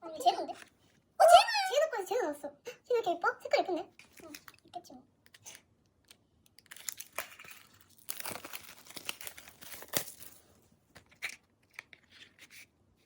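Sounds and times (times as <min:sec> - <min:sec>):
plastic wrappers tearing and crinkling: 0:05.4 - 0:12.4.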